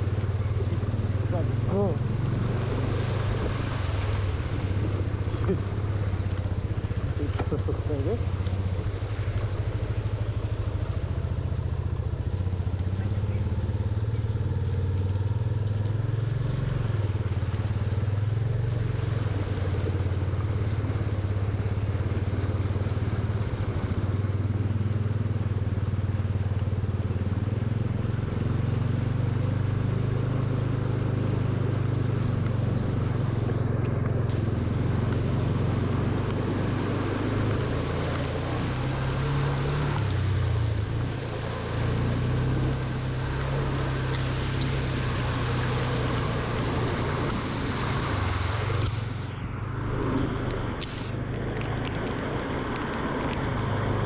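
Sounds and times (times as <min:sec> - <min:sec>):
motorcycle engine running: 0:00.0 - 0:54.0
road and water noise: 0:00.0 - 0:54.0.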